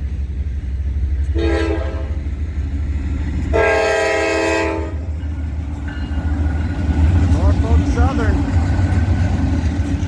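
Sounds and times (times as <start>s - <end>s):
locomotive horn blasts: 1.3s - 2.2s, 3.5s - 5.1s.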